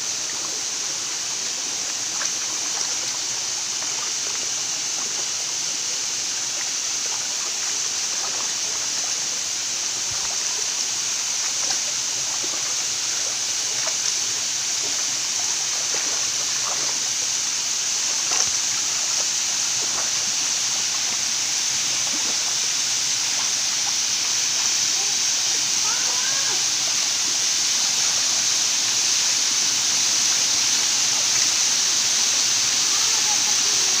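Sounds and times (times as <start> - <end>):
waterfall rushing: 0.0 - 34.0
small water splashes: 6.5 - 25.2.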